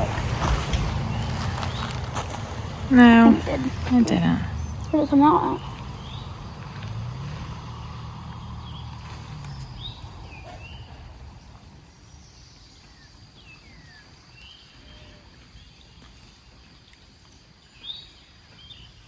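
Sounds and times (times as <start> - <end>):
low rumbling noise: 0.0 - 14.2
small birds chirping: 0.0 - 19.0.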